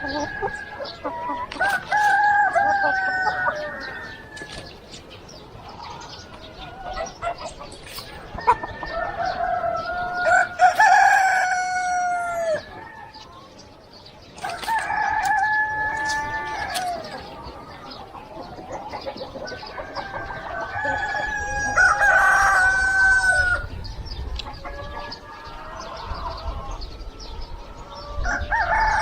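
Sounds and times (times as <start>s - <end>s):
rooster crowing: 0.0s - 4.6s, 8.4s - 13.2s, 14.4s - 17.2s, 19.8s - 23.8s, 28.0s - 29.0s.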